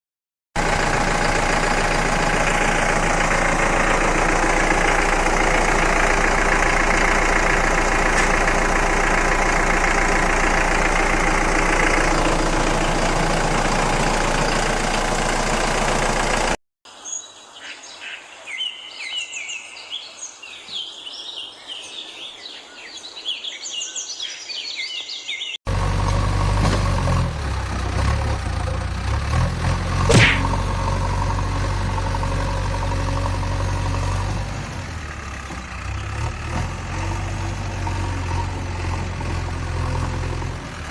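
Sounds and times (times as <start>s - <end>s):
vehicle engine running: 0.6s - 16.6s, 25.7s - 40.9s
birds chirping: 16.9s - 25.6s.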